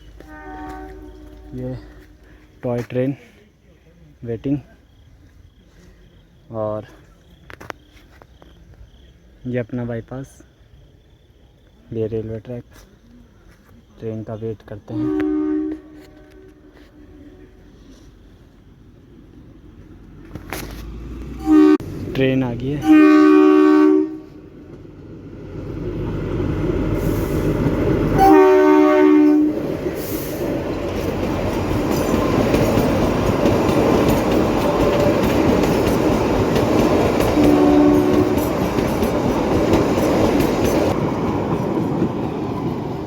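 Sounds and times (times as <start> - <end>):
train horn: 0.0 - 2.3, 14.9 - 18.1, 21.3 - 21.9, 22.8 - 24.5, 28.2 - 29.7, 37.2 - 38.7
train running noise: 0.0 - 3.2, 14.2 - 43.0.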